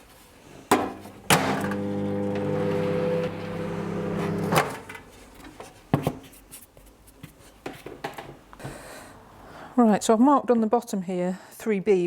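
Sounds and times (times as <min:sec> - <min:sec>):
microwave oven humming: 0:01.3 - 0:04.8.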